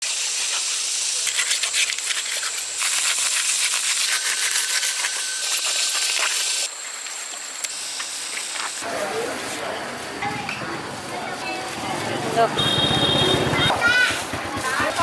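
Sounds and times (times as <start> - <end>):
hiss with crackles: 0.0 - 10.2.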